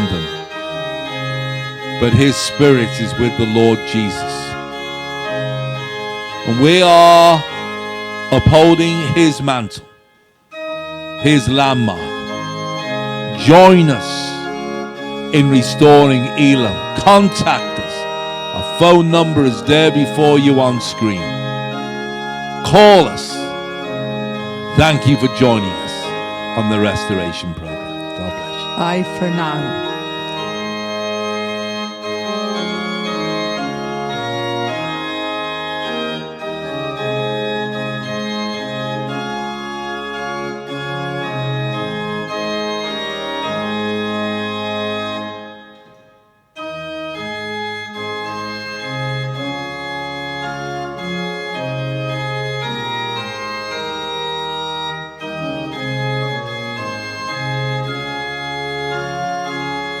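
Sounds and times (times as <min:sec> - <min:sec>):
organ playing sustained chords: 0:00.0 - 1:00.0.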